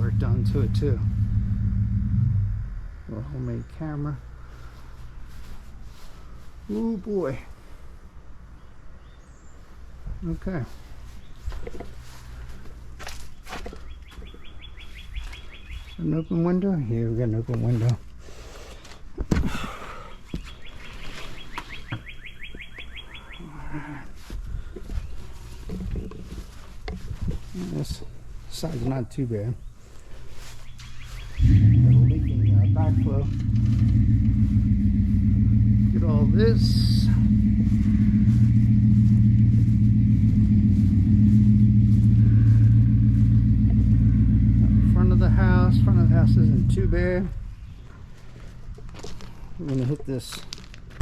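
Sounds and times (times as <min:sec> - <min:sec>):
engine running low hum: 0:00.0 - 0:08.2, 0:30.8 - 0:49.3
bird singing fast trill: 0:13.8 - 0:16.6, 0:20.2 - 0:23.6, 0:30.6 - 0:33.8.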